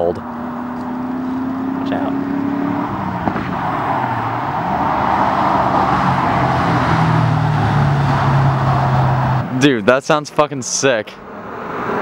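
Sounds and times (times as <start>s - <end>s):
car exhaust revving: 0.0s - 9.6s.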